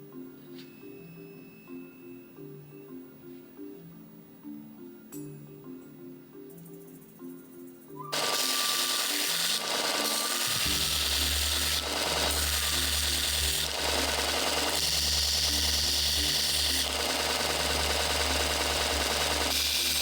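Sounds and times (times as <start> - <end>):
soft background music: 0.0 - 9.3
power tool running roughly: 8.1 - 20.0.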